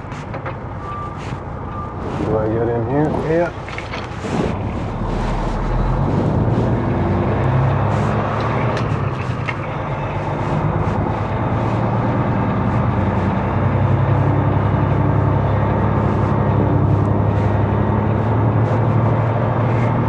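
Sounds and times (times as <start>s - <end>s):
diesel truck engine running: 0.0s - 20.0s.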